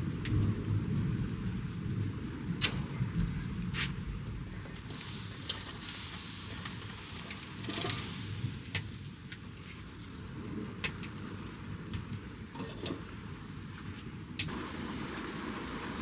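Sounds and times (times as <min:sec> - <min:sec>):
heavy rain falling: 0:14.5 - 0:16.0.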